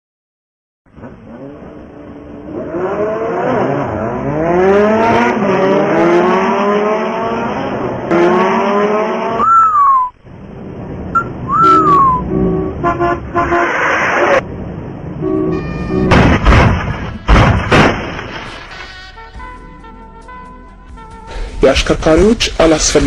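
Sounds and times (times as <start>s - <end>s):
car engine accelerating: 0.9s - 9.8s
tyre squeal: 11.2s - 12.3s.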